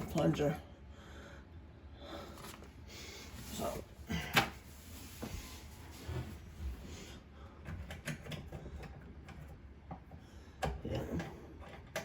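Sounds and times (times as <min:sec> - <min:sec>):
small clicks and knocks of parts: 0:07.6 - 0:12.0.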